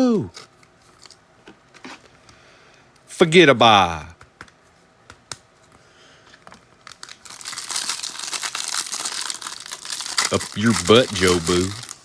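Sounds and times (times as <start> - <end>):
plastic wrapper crinkling and tearing: 6.8 - 12.0.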